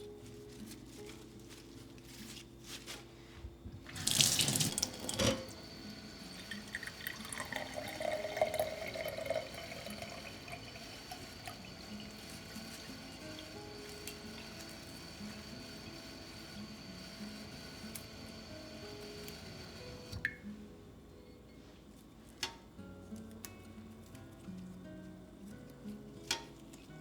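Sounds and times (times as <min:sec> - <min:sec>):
tap water running into sink: 0:03.8 - 0:20.4.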